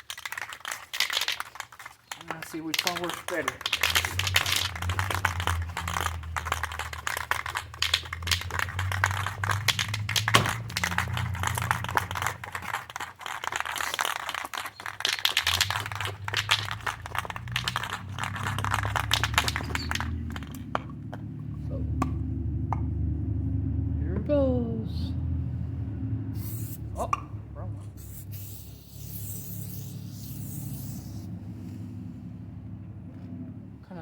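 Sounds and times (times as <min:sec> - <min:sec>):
objects crinkling and clicking: 0:00.0 - 0:21.3.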